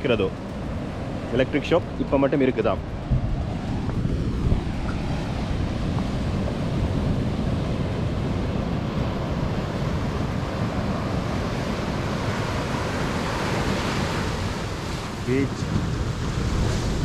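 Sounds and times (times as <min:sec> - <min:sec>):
steady low rumble: 0:00.0 - 0:11.0
wind buffeting microphone: 0:00.0 - 0:17.0
surf breaking on beach: 0:02.5 - 0:17.0.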